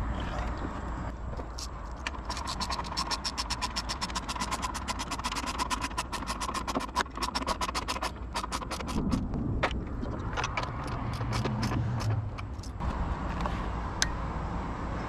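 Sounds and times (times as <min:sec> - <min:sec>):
ratchet wrench clicking: 0:01.6 - 0:09.2.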